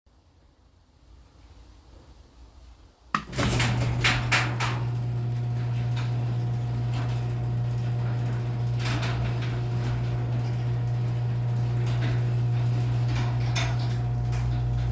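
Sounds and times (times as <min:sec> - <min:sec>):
garage door clacking and rattling: 0:03.2 - 0:14.9
garage door opener clicking on: 0:03.2 - 0:14.9
opener motor humming: 0:03.2 - 0:14.9.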